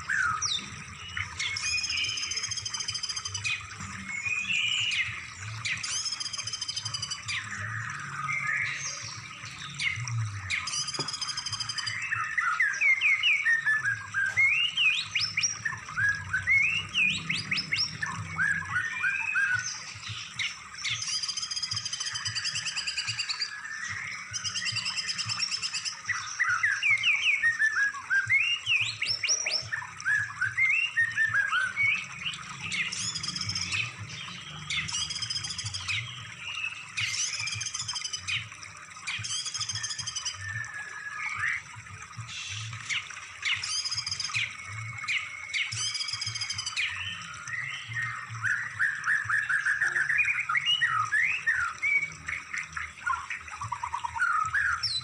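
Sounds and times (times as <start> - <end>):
songbird whistles and trills: 0.0 - 55.0.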